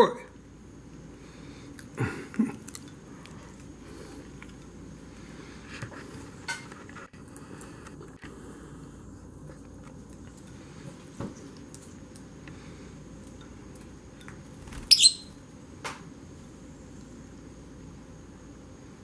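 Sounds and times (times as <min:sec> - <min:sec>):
bird chirp: 0:14.8 - 0:15.4.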